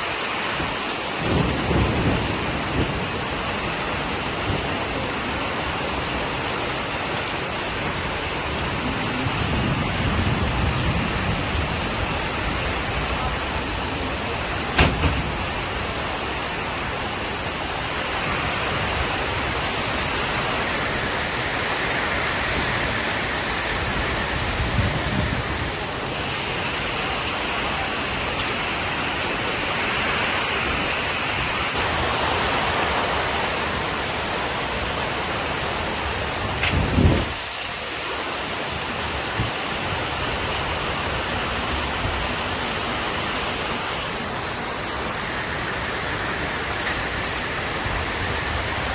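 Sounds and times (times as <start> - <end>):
heavy rain: 0.0 - 48.9
low thump: 14.8 - 15.3.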